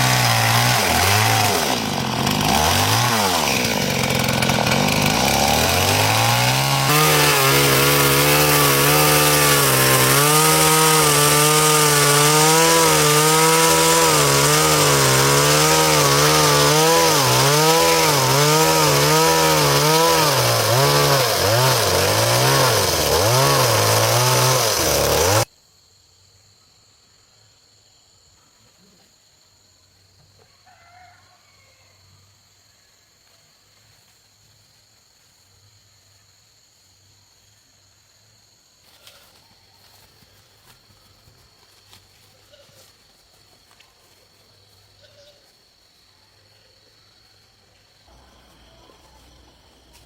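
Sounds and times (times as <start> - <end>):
chainsaw cutting log: 0.0 - 25.5.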